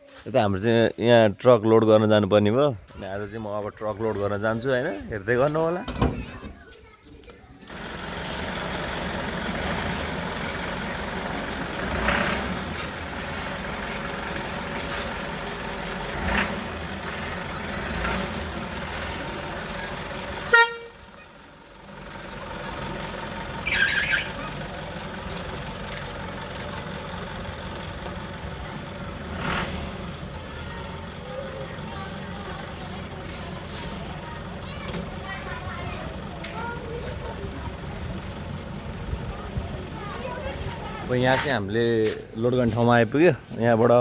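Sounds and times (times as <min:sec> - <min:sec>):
road noise: 0:00.0 - 0:44.0
truck engine: 0:02.1 - 0:44.0
truck horn: 0:19.6 - 0:21.4, 0:23.6 - 0:24.6.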